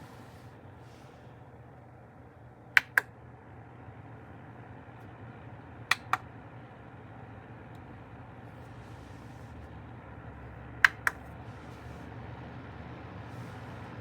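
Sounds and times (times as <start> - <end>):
space heater fan hum: 0.0 - 14.0
sharp clicks: 2.8 - 3.1, 5.9 - 6.3, 10.8 - 11.2.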